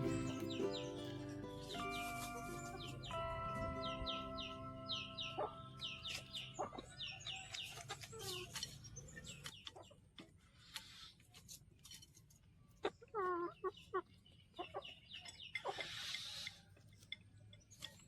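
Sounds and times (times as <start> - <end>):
chicks peeping: 0.0 - 10.0, 12.8 - 17.1
chickens clucking: 0.0 - 11.0, 12.7 - 18.0.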